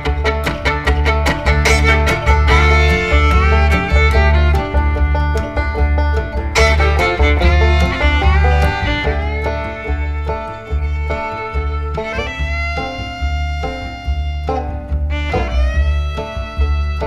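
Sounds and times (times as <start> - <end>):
upbeat country tune: 0.0 - 17.0.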